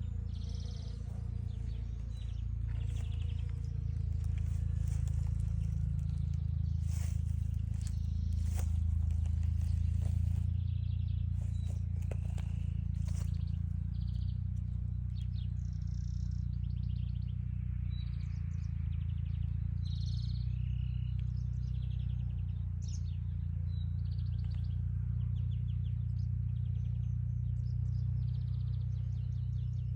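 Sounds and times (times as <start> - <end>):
steady low rumble: 0.0 - 19.6
songbirds chirping and trilling: 0.0 - 29.9.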